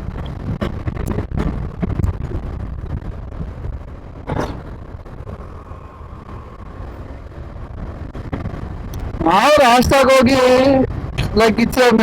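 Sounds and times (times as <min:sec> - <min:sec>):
motorcycle engine: 0:00.0 - 0:09.3
wind buffeting microphone: 0:00.0 - 0:12.0.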